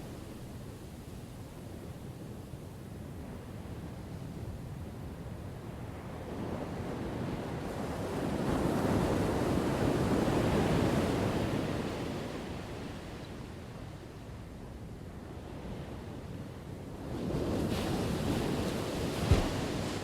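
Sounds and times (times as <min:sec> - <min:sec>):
ocean waves crashing: 0:19.2 - 0:20.0.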